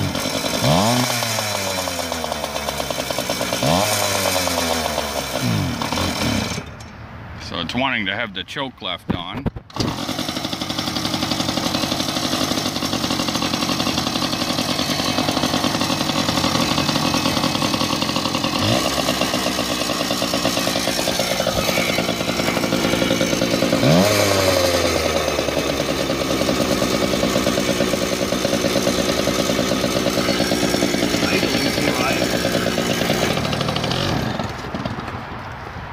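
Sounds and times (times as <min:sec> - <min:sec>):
two-stroke engine revving: 0:00.0 - 0:06.8, 0:09.7 - 0:35.2.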